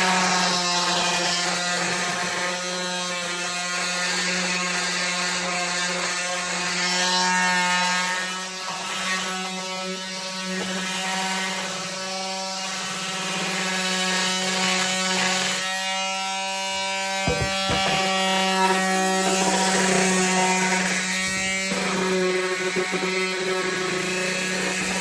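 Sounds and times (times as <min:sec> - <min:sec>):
sandpaper rasping on wood: 0:02.6 - 0:25.0
electric sander motor hum: 0:08.4 - 0:25.0
knocks: 0:16.7 - 0:19.8.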